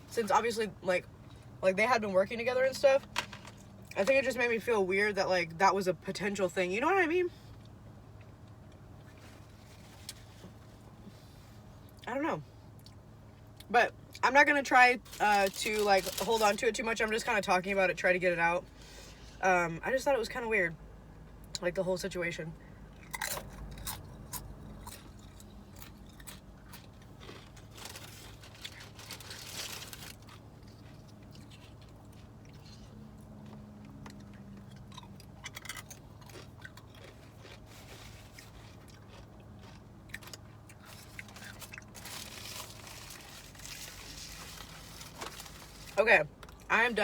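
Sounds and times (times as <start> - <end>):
low steady hum: 0.0 - 47.0
person chewing and crunching food: 15.0 - 16.6, 23.0 - 46.8.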